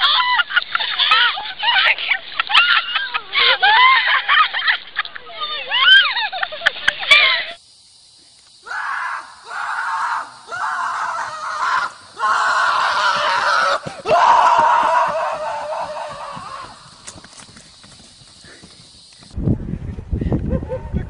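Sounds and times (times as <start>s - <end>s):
loud screams: 0.0s - 4.8s, 5.4s - 6.2s, 8.6s - 17.2s.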